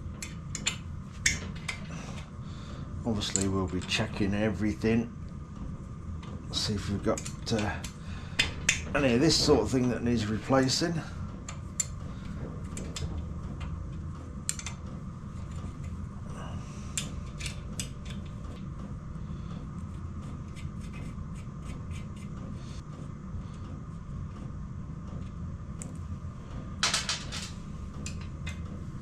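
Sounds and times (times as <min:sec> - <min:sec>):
steady low hum: 0:00.0 - 0:29.0
metallic clicks of engine parts: 0:03.2 - 0:04.0, 0:14.4 - 0:14.8.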